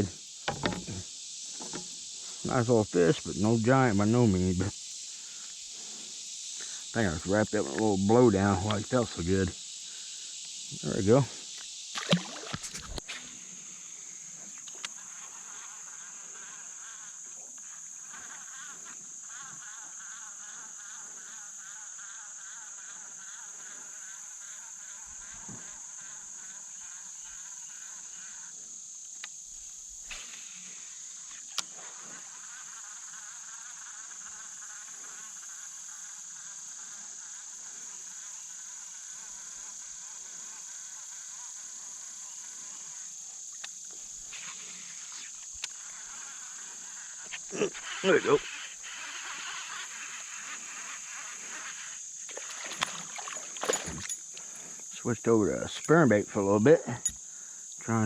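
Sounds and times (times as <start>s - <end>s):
insect pulsing trill: 0.0s - 58.0s
insects high-pitched buzz: 0.0s - 58.0s
light knocks: 0.5s - 1.0s.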